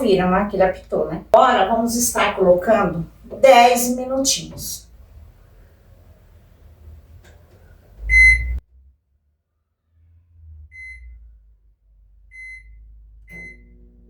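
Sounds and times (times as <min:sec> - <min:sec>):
microwave beeping: 0:08.0 - 0:08.6, 0:12.3 - 0:14.0.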